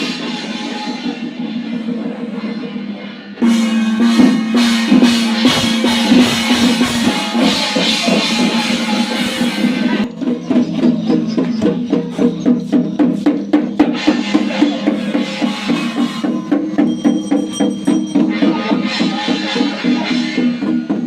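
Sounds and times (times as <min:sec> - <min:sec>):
ringing metallic tone: 0:00.0 - 0:21.0
sharp wood-block or drum strokes: 0:00.0 - 0:21.0.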